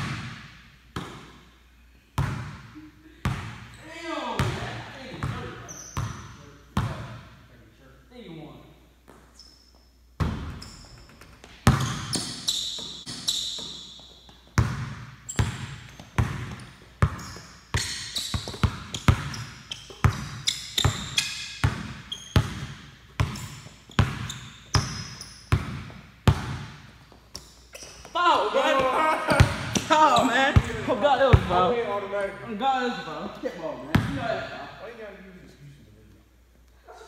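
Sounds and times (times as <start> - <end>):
sneakers squeaking on wood: 5.3 - 6.3, 9.1 - 26.0, 26.9 - 28.2, 29.4 - 31.6
basketball bouncing on wooden floor: 10.2 - 28.1, 29.4 - 31.6.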